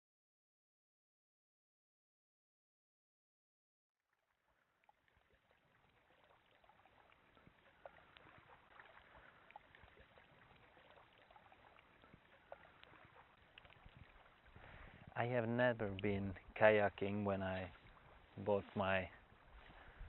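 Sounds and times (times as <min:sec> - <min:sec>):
water lapping and dripping: 0:04.0 - 0:20.0
small splashes: 0:04.1 - 0:20.0.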